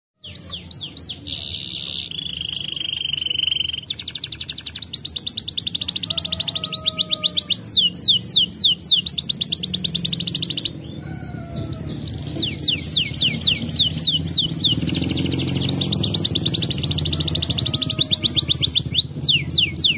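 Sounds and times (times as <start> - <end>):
canary singing trills: 0.2 - 19.9.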